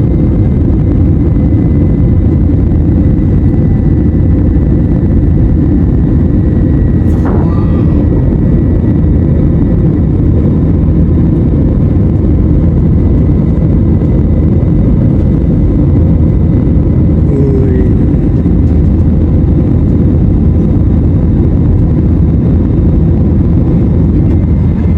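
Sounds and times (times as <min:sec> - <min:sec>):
airliner engines roaring: 0:00.0 - 0:24.9
faint steady whine: 0:01.0 - 0:24.9.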